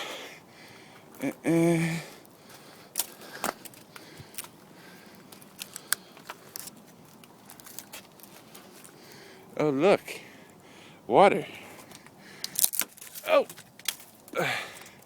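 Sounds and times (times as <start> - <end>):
footsteps on twigs and leaves: 0.9 - 9.3, 11.6 - 14.4.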